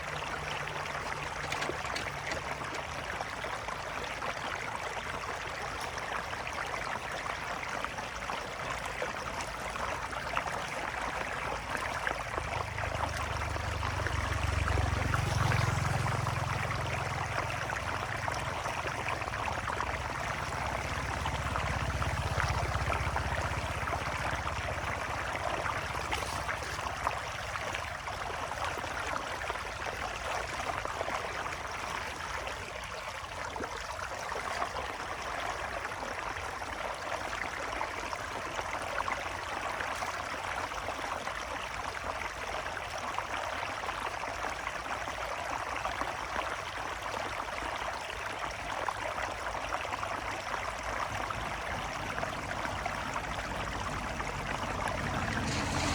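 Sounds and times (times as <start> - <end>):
water rushing in a stream: 0.0 - 55.9.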